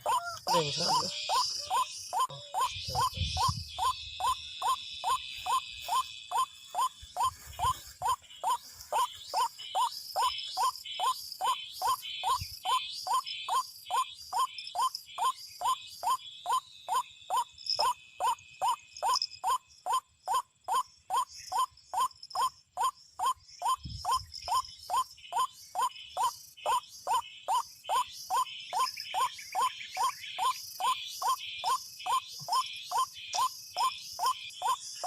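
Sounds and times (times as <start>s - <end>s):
waterhen calling: 0.0s - 3.1s.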